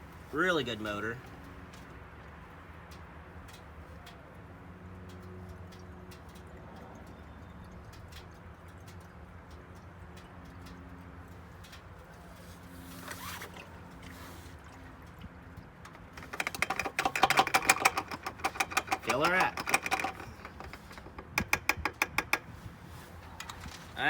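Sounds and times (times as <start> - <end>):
light ticks: 1.2 - 12.8.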